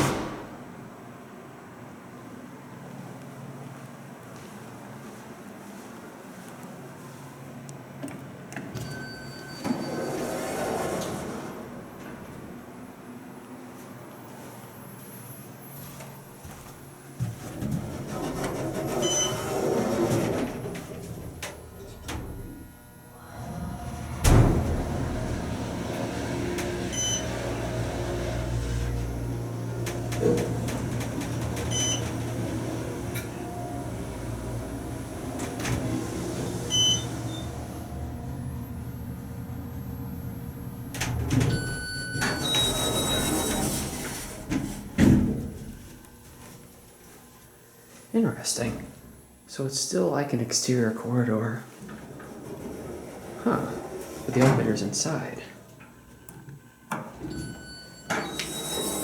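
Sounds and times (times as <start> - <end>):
elevator clunk: 0.0 - 0.9, 17.6 - 46.0, 51.8 - 54.9, 55.8 - 59.0
elevator low hum: 0.0 - 59.0.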